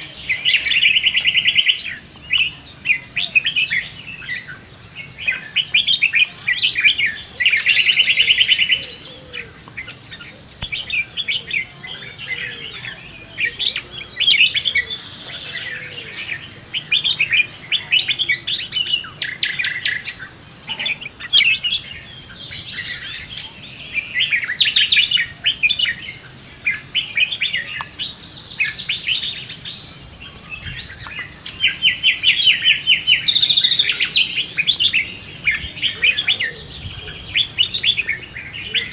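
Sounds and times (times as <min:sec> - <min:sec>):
birds singing and chirping: 0:00.0 - 0:38.9.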